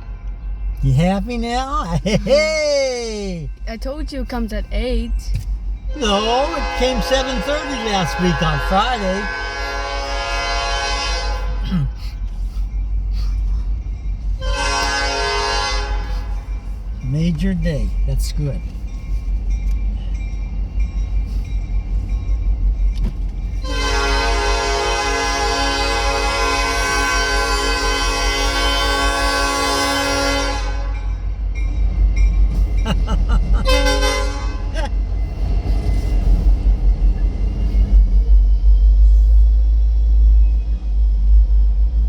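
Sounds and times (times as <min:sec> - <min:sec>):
steady low rumble: 0:00.0 - 0:26.3, 0:31.1 - 0:42.0
locomotive air horn chord: 0:05.9 - 0:11.8, 0:14.4 - 0:16.4, 0:23.6 - 0:31.1, 0:33.6 - 0:34.8.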